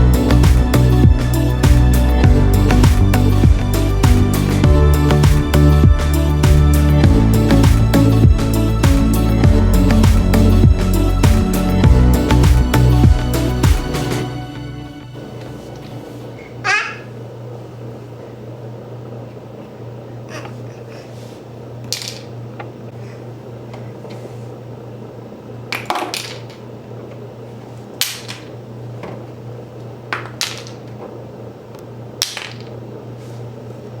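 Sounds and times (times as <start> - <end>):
steady low hum: 0.0 - 25.7.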